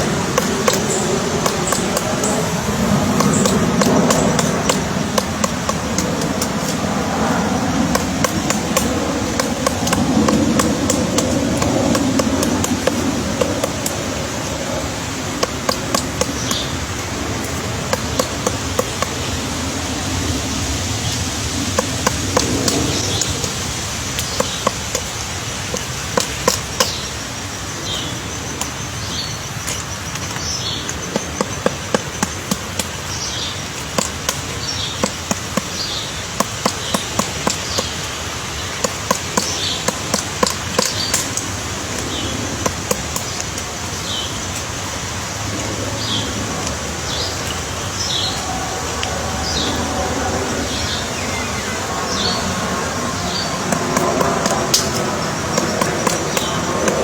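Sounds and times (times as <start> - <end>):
woodpecker pecking at wood: 0.0 - 27.1, 29.6 - 44.7, 50.5 - 57.0
steady background hiss: 0.0 - 57.0.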